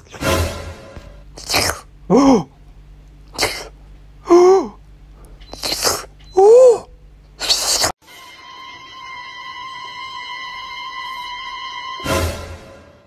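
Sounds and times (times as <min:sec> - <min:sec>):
sneeze-like bursts: 0:01.4 - 0:02.5, 0:03.3 - 0:04.8, 0:05.5 - 0:06.8, 0:07.4 - 0:08.0.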